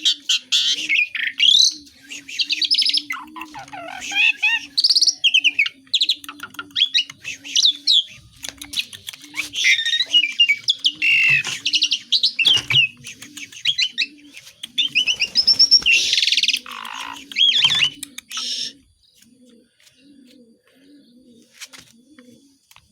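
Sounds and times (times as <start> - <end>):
starling singing: 0.0 - 18.9
dove cooing: 0.0 - 22.9.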